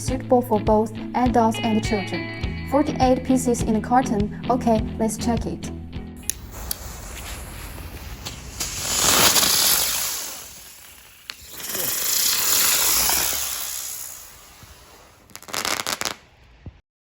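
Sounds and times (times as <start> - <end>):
sharp click: 6.2 - 6.8
firework hissing: 6.2 - 16.3
crackling pops: 6.2 - 16.8.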